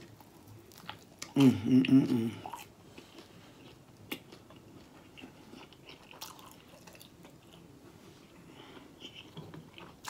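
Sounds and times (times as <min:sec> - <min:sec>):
chewing with wet mouth sounds: 0:00.0 - 0:07.7.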